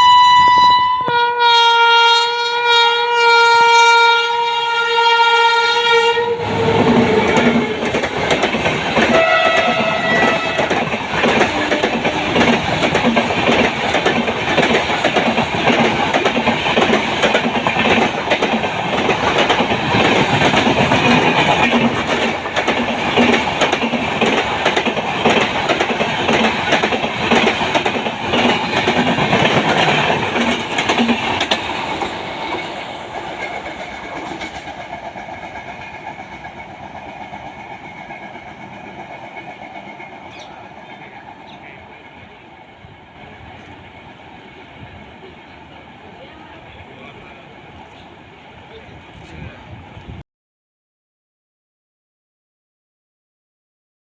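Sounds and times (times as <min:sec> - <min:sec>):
locomotive horn blast: 0:00.0 - 0:07.9, 0:09.1 - 0:10.8, 0:11.4 - 0:12.5
train rushing past: 0:03.1 - 0:50.2
train wheels clattering: 0:06.5 - 0:44.8.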